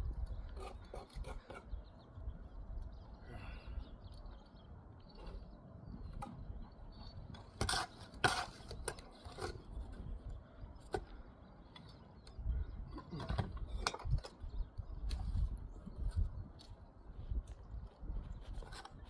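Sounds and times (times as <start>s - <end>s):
trowel and bricks on mortar: 0.2s - 1.8s, 7.3s - 11.0s.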